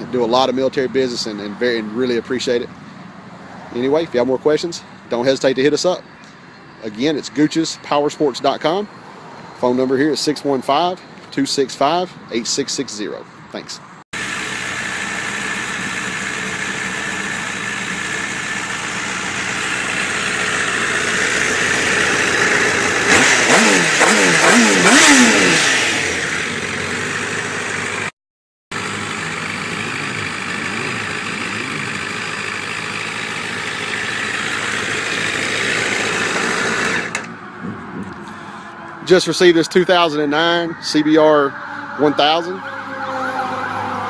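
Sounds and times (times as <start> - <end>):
motorcycle engine revving: 14.2 - 28.1, 28.7 - 37.8.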